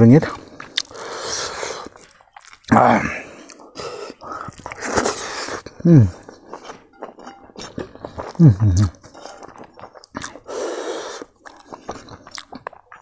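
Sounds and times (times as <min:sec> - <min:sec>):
person chewing food: 0:00.3 - 0:13.0.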